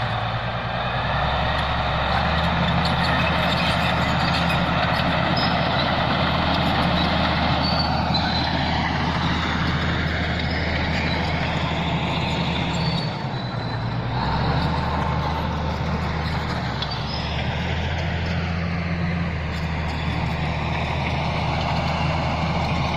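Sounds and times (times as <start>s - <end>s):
bulldozer diesel engine running: 0.0s - 22.9s
high sliding squeals: 2.2s - 17.6s.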